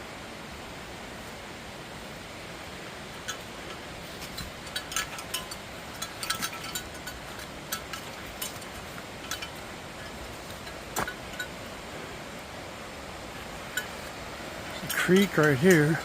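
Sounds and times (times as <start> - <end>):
rain hissing: 0.0 - 16.0
bear bells jingling: 3.2 - 11.9, 13.5 - 16.0.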